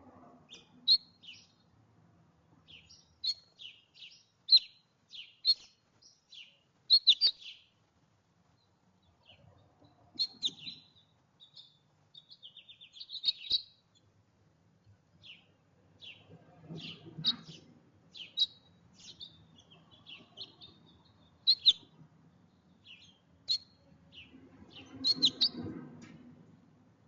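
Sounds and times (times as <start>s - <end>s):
songbirds chirping: 0.0s - 27.0s
bird trill: 0.5s - 1.6s, 2.7s - 7.7s, 10.2s - 13.8s, 16.8s - 21.9s, 22.8s - 25.6s.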